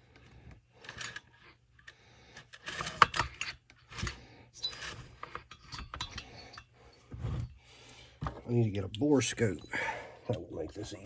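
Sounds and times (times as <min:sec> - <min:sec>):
small tools rattling on workbench: 0:02.5 - 0:07.4.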